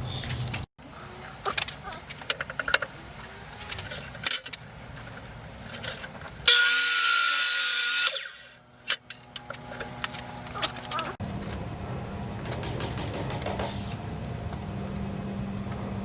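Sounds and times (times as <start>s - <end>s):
tools and parts clattering: 1.5s - 11.2s
power tool running: 6.5s - 11.2s.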